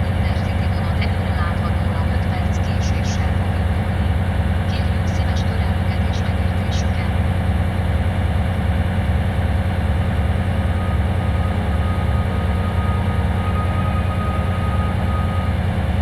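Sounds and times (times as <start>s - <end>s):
diesel engine idling: 0.0s - 16.0s
faint thin tone: 10.1s - 16.0s.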